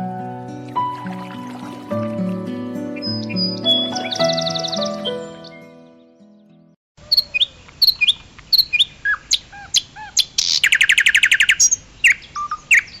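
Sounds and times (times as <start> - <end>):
small bird chirping and trilling: 3.0 - 5.6, 7.0 - 13.0.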